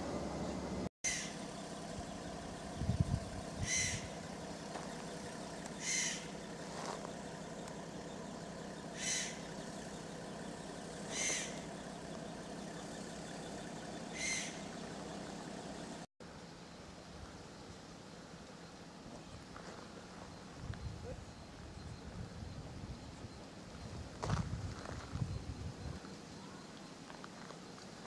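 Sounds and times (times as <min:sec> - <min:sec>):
steady low hum: 0:00.0 - 0:28.0
bird call: 0:00.4 - 0:16.0.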